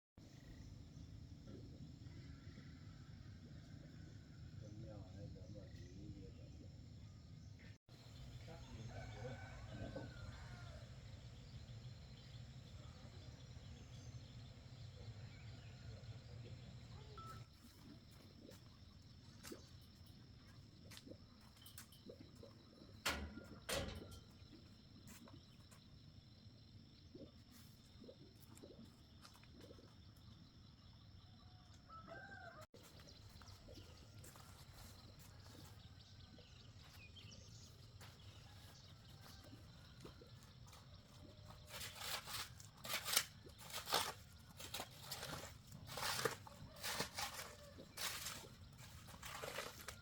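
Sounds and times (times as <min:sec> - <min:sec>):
faint bird chirps: 0:00.3 - 0:10.8, 0:11.4 - 0:42.2
thin steady high tone: 0:17.0 - 0:17.8.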